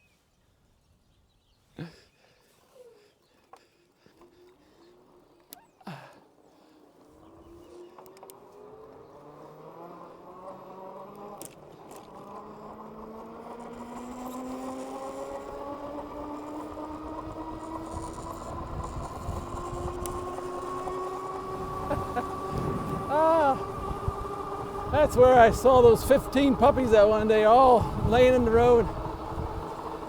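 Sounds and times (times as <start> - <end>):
electric bike motor whine: 3.4 - 30.0
road and wind noise: 6.4 - 30.0.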